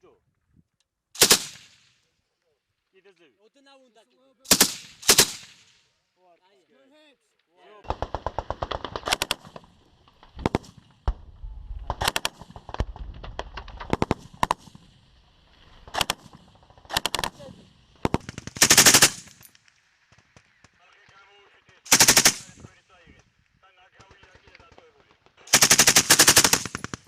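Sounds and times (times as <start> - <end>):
machine gun bursts: 1.2 - 1.6, 4.5 - 5.5, 7.9 - 9.6, 15.8 - 19.4, 21.9 - 22.6, 25.5 - 27.0.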